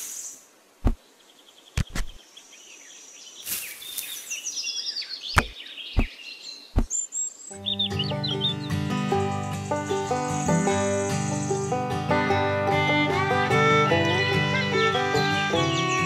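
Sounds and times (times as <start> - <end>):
small birds chirping: 0.0 - 12.1, 13.6 - 16.0
sharp clicks and knocks: 1.8 - 2.2
music: 7.6 - 16.0.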